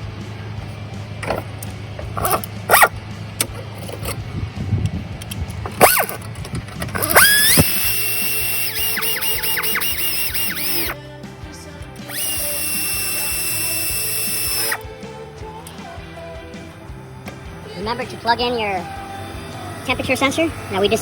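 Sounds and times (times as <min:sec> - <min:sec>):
power drill whining: 0:01.2 - 0:04.2, 0:05.1 - 0:11.0, 0:12.0 - 0:21.0
handling clicks and knocks: 0:01.2 - 0:08.0.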